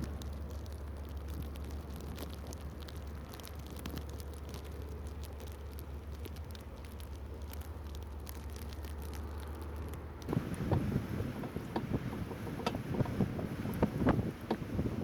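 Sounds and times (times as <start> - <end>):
light ticks: 0.0 - 10.8
storm wind rumble: 10.2 - 15.0
wind buffeting microphone: 10.3 - 15.0.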